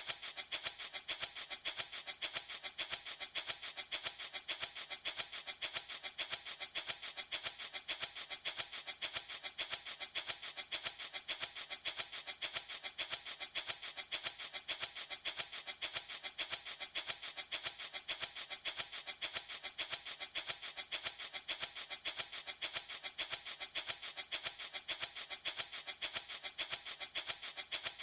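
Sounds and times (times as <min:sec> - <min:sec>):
wooden rattle shaken: 0:00.0 - 0:28.0.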